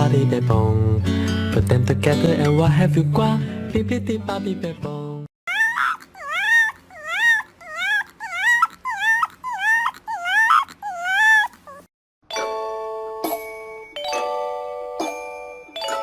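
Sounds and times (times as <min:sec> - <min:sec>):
dog whining: 0:05.5 - 0:11.9.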